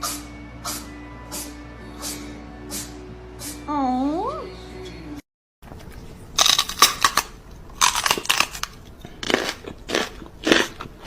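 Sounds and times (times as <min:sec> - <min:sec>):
crunchy food being chewed: 0:05.7 - 0:11.0.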